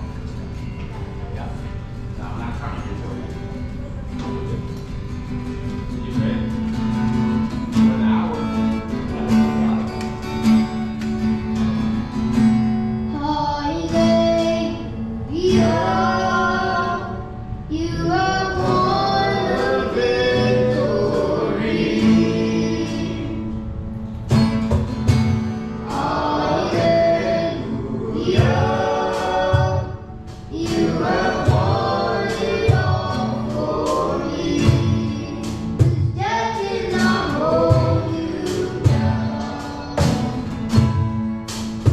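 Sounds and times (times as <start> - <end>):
guitar accompaniment: 0.0 - 41.9
group of voices singing: 13.6 - 23.8, 25.7 - 40.8.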